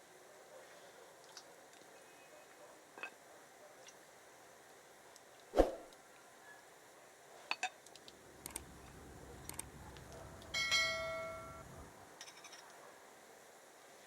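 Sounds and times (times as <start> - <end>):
struck dish ringing: 10.5 - 11.6.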